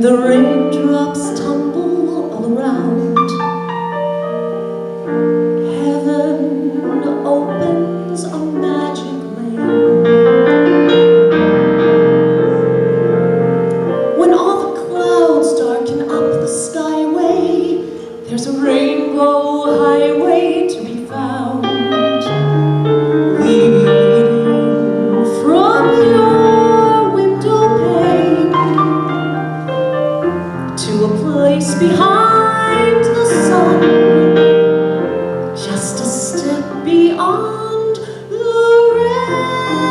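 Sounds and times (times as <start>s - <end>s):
woman singing slow song: 0.0s - 3.4s, 5.6s - 10.1s, 14.2s - 22.6s, 23.3s - 29.4s, 30.8s - 34.5s, 35.6s - 39.9s
piano chords: 0.0s - 39.9s.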